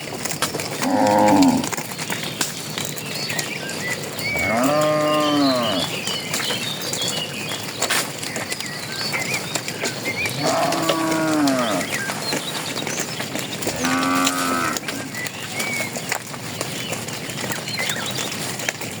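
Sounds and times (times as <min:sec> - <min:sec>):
birds chirping: 0:00.0 - 0:19.0
cattle mooing: 0:00.8 - 0:01.8, 0:04.2 - 0:06.0, 0:10.2 - 0:12.2, 0:13.6 - 0:15.2.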